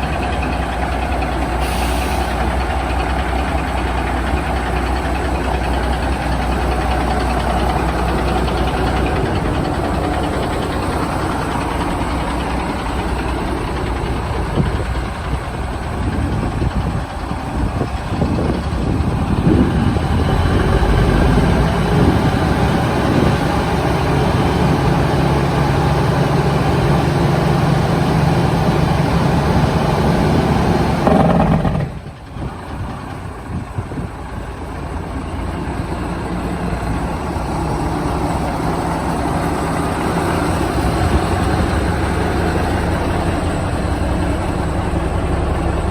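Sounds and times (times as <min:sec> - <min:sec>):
loud diesel truck engine: 0:00.0 - 0:45.9.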